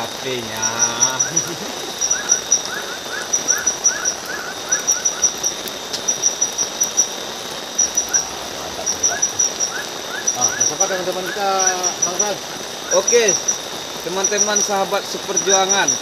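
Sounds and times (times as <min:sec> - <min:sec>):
cricket-like insect chirping: 0:00.0 - 0:16.0
high insect drone: 0:00.0 - 0:16.0
short rising animal calls: 0:07.7 - 0:10.7.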